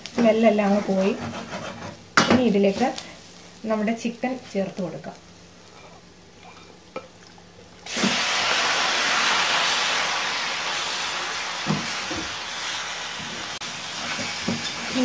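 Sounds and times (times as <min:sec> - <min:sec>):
chicken sizzling in hot oil: 0:07.8 - 0:15.0.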